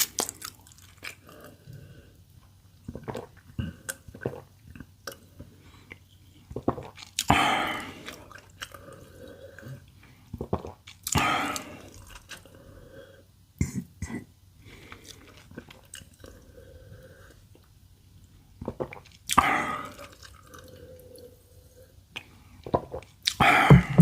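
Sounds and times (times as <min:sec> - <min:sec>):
person chewing food: 0:00.0 - 0:01.8, 0:18.6 - 0:21.1.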